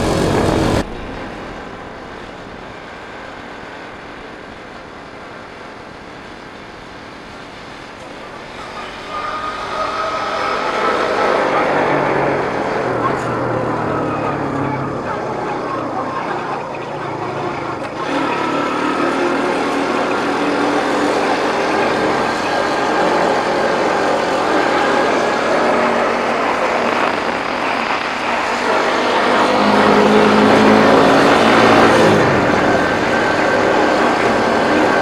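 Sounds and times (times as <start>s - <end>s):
motorbike engine running: 0.0s - 1.0s, 8.0s - 35.0s.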